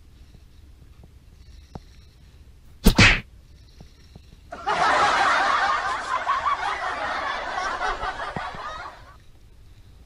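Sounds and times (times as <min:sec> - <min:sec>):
group of people laughing: 0:04.5 - 0:09.2.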